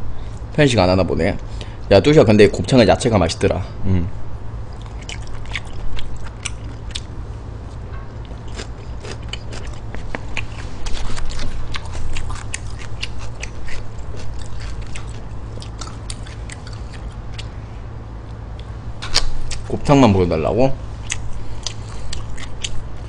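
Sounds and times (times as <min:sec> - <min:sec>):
steady low hum: 0:00.0 - 0:23.0
close chewing: 0:04.7 - 0:07.1, 0:08.2 - 0:17.6, 0:18.6 - 0:19.7, 0:21.0 - 0:23.0.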